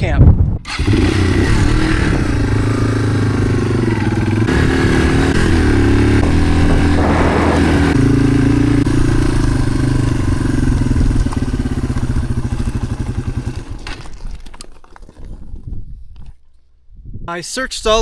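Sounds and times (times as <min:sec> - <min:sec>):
motorcycle engine running: 0:00.7 - 0:14.4.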